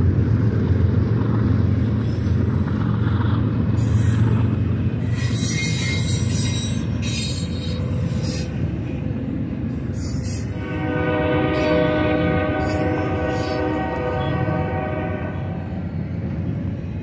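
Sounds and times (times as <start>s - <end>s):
freight train rumbling past: 0.0s - 17.0s
locomotive air horn: 10.5s - 15.6s.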